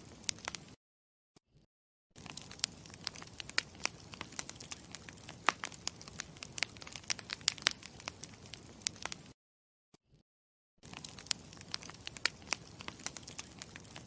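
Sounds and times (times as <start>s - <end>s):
campfire crackling and popping: 0.0s - 0.8s, 2.2s - 9.4s, 10.8s - 14.0s.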